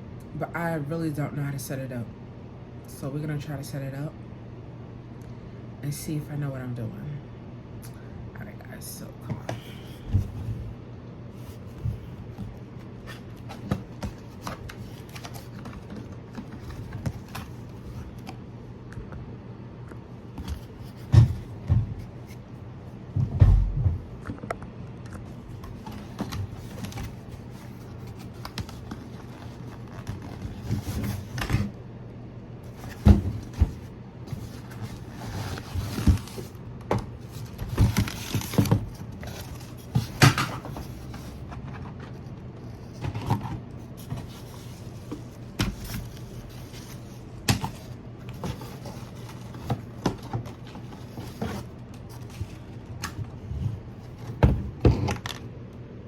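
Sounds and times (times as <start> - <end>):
steady low hum: 0.0 - 56.0
cardboard and plastic rustling: 9.4 - 18.5, 20.3 - 22.6, 25.2 - 31.8, 32.6 - 55.5.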